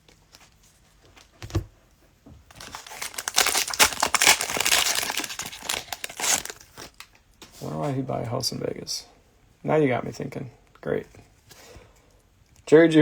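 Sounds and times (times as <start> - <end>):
cellophane wrapper crinkling and tearing: 2.5 - 7.2.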